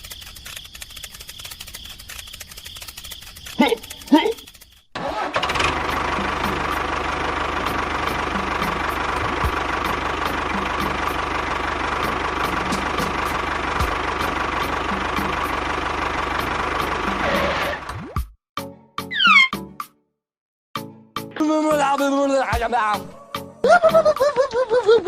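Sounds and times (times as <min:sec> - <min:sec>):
small engine idling: 0:00.0 - 0:17.9.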